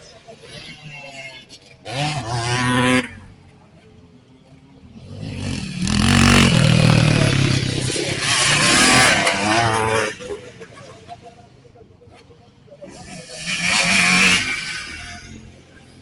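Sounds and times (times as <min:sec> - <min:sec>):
motorcycles racing past: 0:01.8 - 0:03.2, 0:04.8 - 0:10.7, 0:12.9 - 0:16.0.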